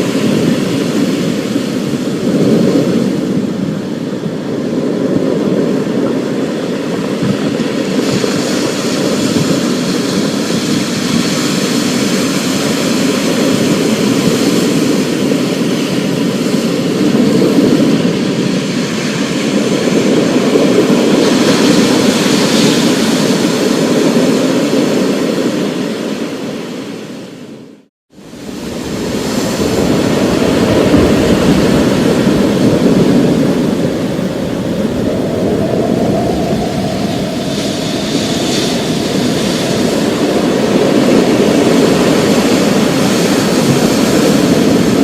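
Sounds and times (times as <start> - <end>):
thunder rumbling: 28.3 - 45.0
rain hiss: 28.8 - 40.5.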